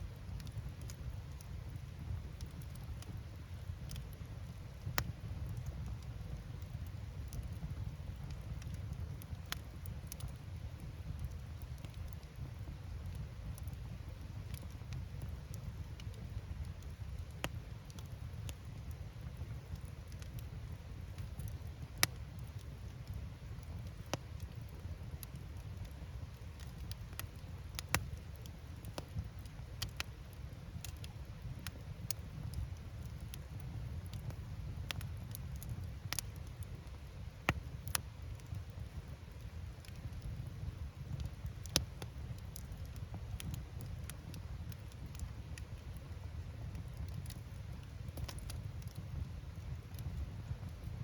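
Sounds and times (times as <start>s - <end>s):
campfire crackling and popping: 0.0s - 51.0s
low fire rumble: 0.0s - 51.0s.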